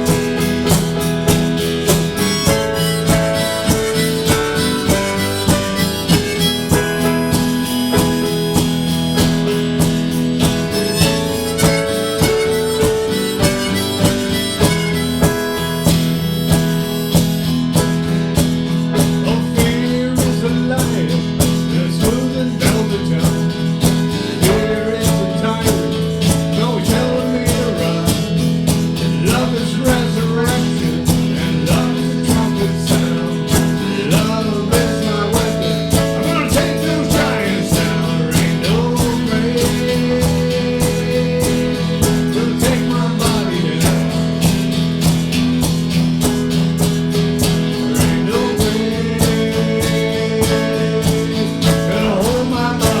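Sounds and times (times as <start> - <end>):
harmonica playing chords: 0.0 - 18.9, 32.4 - 53.0
fast steady beat: 0.0 - 53.0
guitar: 0.0 - 53.0.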